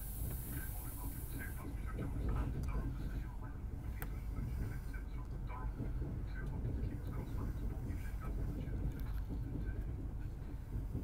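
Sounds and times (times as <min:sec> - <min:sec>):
faint voices: 0:00.0 - 0:11.0
train low rumble: 0:00.0 - 0:11.0.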